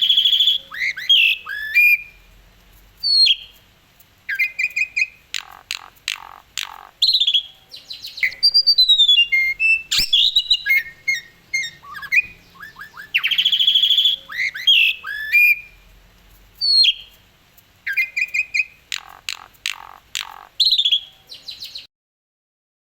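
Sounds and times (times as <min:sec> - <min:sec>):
starling singing: 0:00.0 - 0:02.3, 0:04.2 - 0:15.9, 0:16.6 - 0:21.9.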